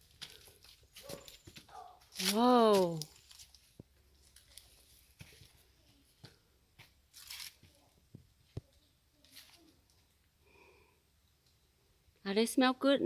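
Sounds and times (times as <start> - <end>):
footsteps crunching on trail: 0.0 - 7.8.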